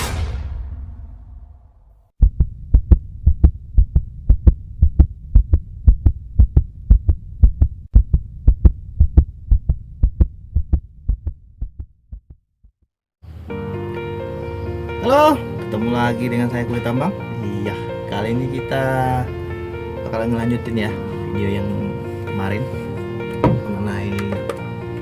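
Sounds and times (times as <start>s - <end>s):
whoosh: 0.0s - 2.1s
low hum: 0.0s - 12.6s
rhythmic low thumping with clicks: 2.2s - 12.8s.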